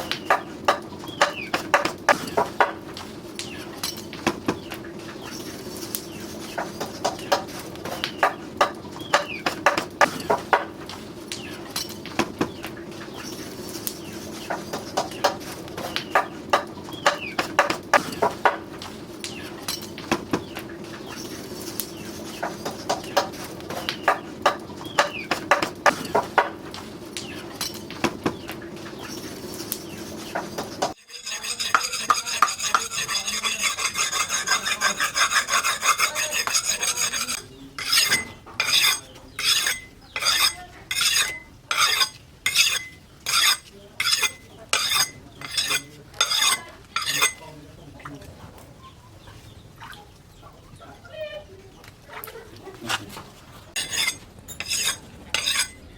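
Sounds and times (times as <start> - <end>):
steel scraping hard surface: 5.2 - 10.5, 29.0 - 47.5, 53.7 - 55.9.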